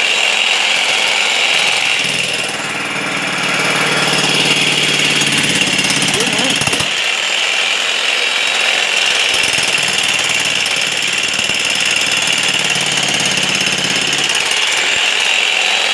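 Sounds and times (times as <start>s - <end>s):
demolition hammer breaking masonry: 1.7s - 7.0s, 9.3s - 15.1s.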